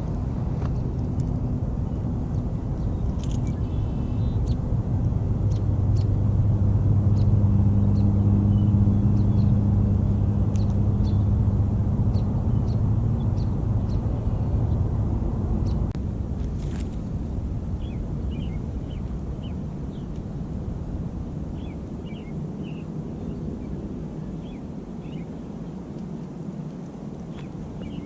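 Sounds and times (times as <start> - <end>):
distant engine drone: 0.0 - 28.0.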